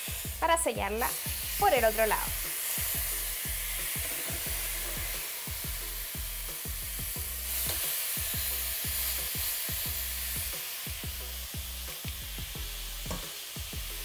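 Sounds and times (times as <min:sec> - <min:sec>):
beef sizzling in a pot: 0:00.0 - 0:14.0.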